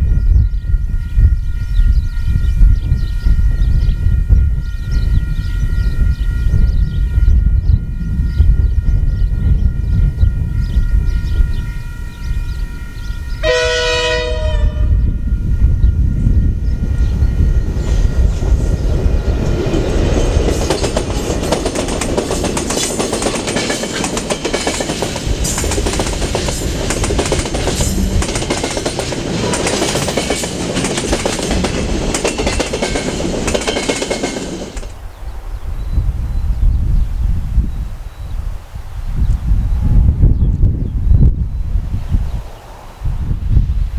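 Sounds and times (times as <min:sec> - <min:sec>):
train horn blasts: 0:00.0 - 0:17.5
train wheel clatter: 0:15.6 - 0:35.0.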